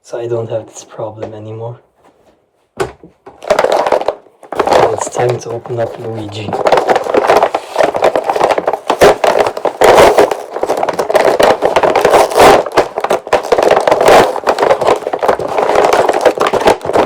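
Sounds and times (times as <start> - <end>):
cardboard tearing and scraping: 3.4 - 17.0.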